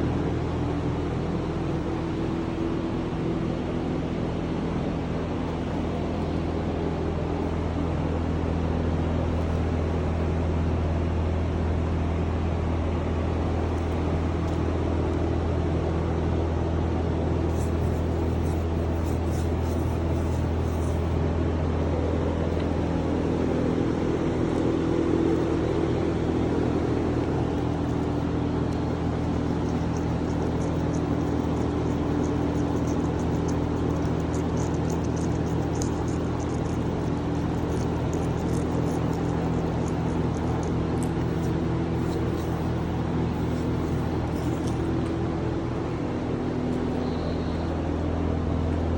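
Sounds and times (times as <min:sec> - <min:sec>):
motor humming: 0:13.0 - 0:48.8.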